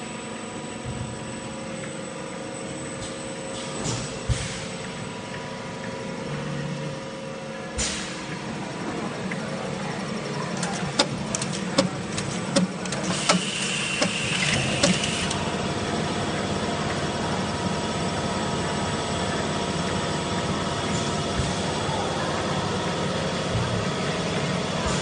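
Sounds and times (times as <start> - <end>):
filling machine humming: 4.3 - 25.0
sharp machine clacks: 10.7 - 15.4.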